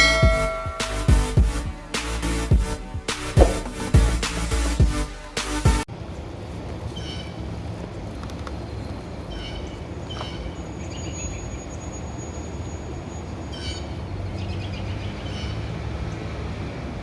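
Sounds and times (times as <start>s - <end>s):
birds chirping: 5.9s - 17.0s.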